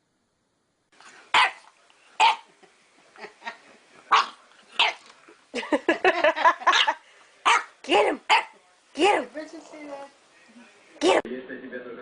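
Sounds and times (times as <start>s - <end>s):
dog barking: 1.3s - 2.5s, 4.1s - 5.0s, 6.6s - 8.6s.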